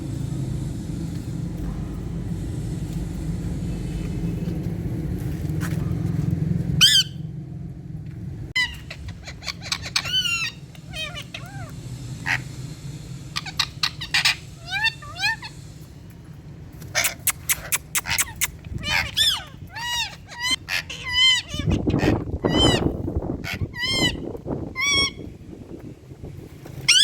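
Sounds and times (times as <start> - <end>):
low noise: 0.0 - 17.0
parakeet shrill calls: 6.8 - 7.2, 8.6 - 12.4, 13.4 - 15.6, 16.9 - 22.9, 23.5 - 24.2.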